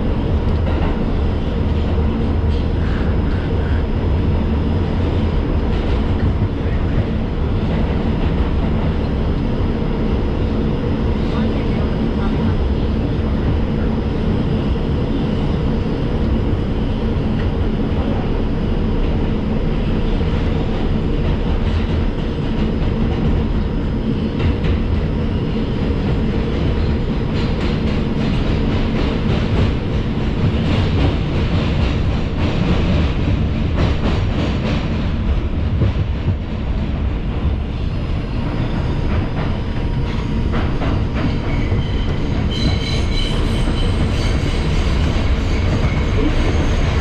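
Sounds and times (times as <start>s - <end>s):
track clicks and clacks: 0.0s - 14.0s, 17.2s - 47.0s.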